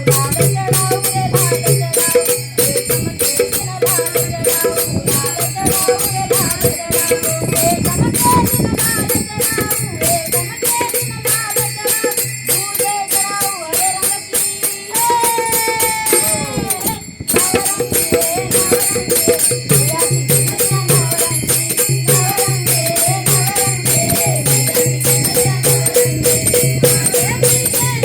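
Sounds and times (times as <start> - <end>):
jingling rattling percussion: 0.0 - 28.0
person singing folk song: 0.0 - 28.0.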